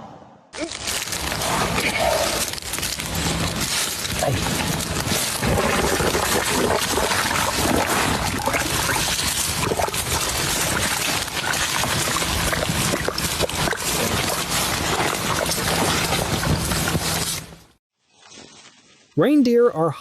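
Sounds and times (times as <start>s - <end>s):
spring water gushing and fizzing: 3.7s - 17.5s.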